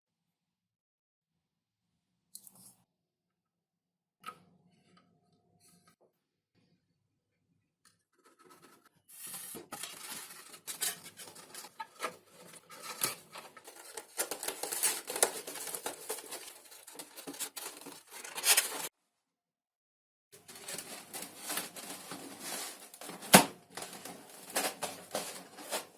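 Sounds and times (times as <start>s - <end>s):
scratchy rustling and tearing: 9.3s - 18.9s, 20.4s - 25.9s.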